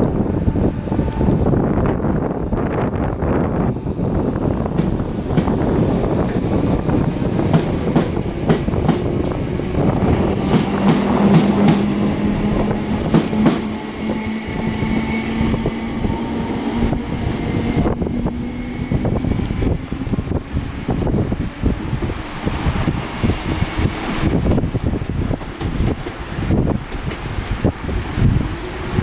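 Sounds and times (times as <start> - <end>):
train wheels clicking over rail joints: 3.8 - 14.2, 19.2 - 28.2.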